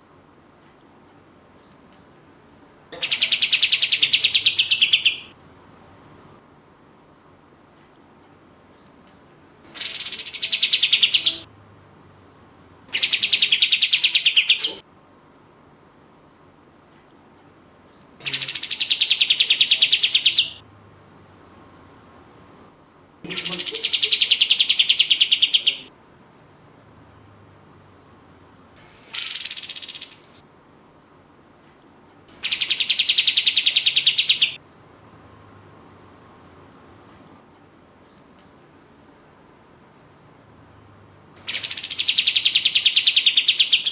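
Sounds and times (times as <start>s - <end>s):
bird singing fast trills: 3.0s - 5.3s, 9.8s - 11.4s, 13.0s - 14.8s, 18.2s - 20.6s, 23.3s - 25.9s, 29.1s - 30.4s, 32.4s - 34.6s, 41.5s - 43.9s
songbird rattling trills: 29.1s - 30.3s, 32.4s - 34.6s, 41.5s - 43.9s.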